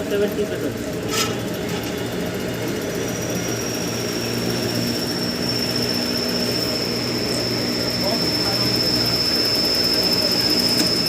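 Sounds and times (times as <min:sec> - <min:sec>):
cooling fans humming: 0:00.0 - 0:11.0
thin high whine: 0:02.9 - 0:11.0.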